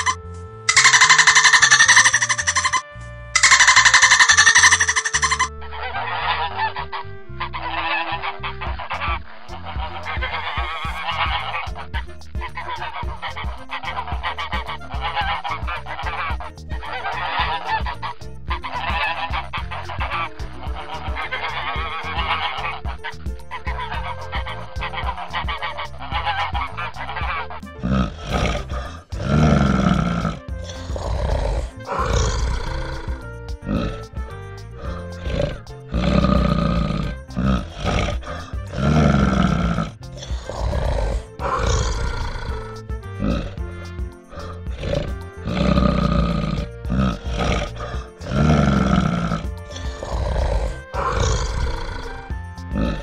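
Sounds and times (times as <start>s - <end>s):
harsh animal grunting calls: 0.0s - 6.7s, 12.6s - 34.2s, 34.8s - 53.0s
honking bird calls: 0.0s - 7.0s
background music: 0.0s - 53.0s.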